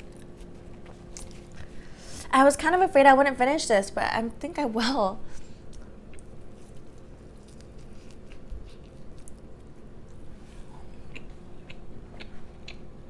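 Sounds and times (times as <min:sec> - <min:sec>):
chewing and biting food: 0:00.0 - 0:01.8, 0:05.6 - 0:13.0
wet clicks and crunches: 0:05.7 - 0:10.2.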